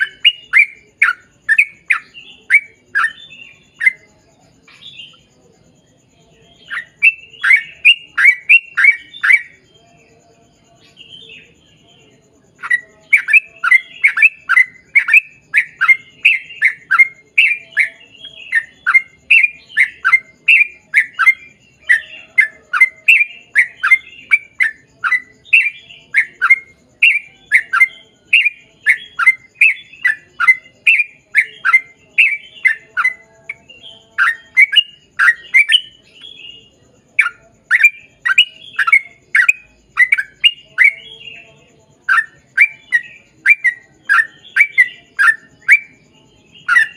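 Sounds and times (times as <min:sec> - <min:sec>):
bird singing downward notes: 0:00.0 - 0:05.3.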